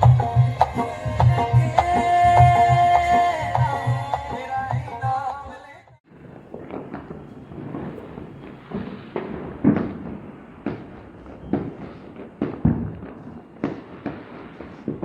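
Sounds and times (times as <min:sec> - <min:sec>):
firecracker bangs: 0:06.0 - 0:15.0.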